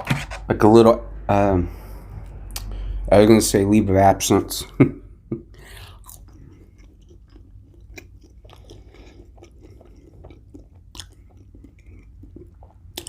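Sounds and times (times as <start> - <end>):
person chewing food: 5.4 - 13.0.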